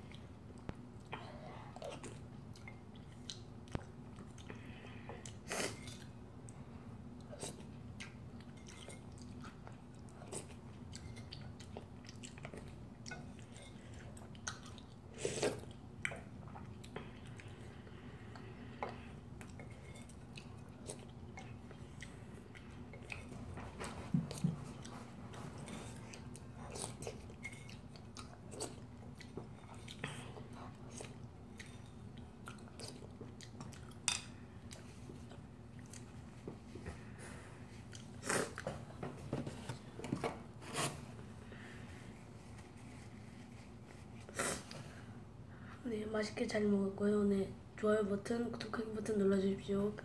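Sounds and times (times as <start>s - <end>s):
person chewing noodles: 0.0s - 36.4s, 37.0s - 38.7s
faint low hum: 0.0s - 50.0s.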